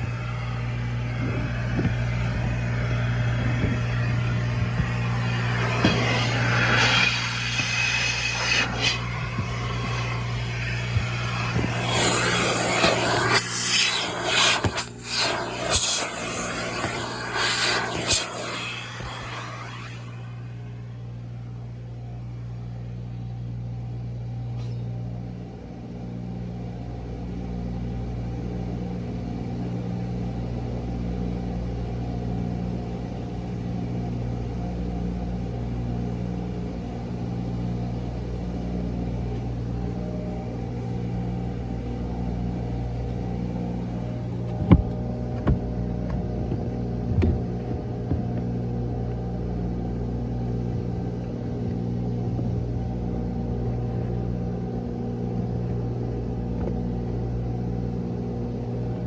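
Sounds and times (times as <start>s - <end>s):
vacuum humming: 0.0s - 21.8s, 38.2s - 48.5s.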